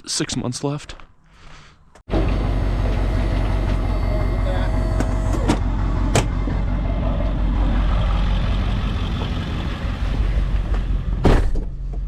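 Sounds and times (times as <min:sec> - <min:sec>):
road rumble: 0:01.9 - 0:12.0
truck engine: 0:02.1 - 0:11.2.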